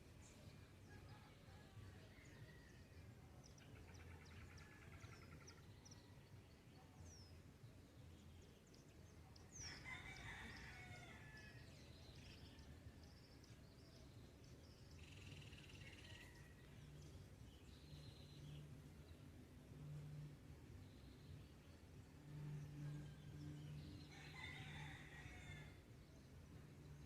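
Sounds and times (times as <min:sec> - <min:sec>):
distant rooster crowing: 0:09.6 - 0:11.8, 0:24.1 - 0:25.8.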